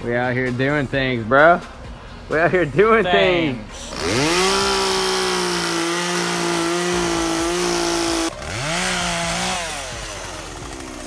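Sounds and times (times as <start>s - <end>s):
chainsaw at full throttle: 3.8s - 11.0s.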